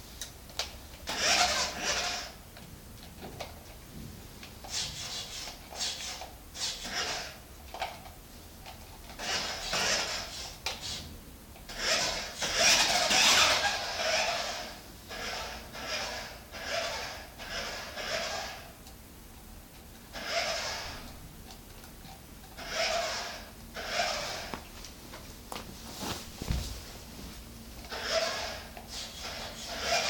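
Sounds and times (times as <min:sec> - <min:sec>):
toy car electric motor whirring: 0:01.1 - 0:02.4, 0:04.7 - 0:07.9, 0:09.1 - 0:11.0, 0:11.7 - 0:18.9, 0:20.1 - 0:21.2, 0:22.4 - 0:24.5, 0:27.8 - 0:30.0.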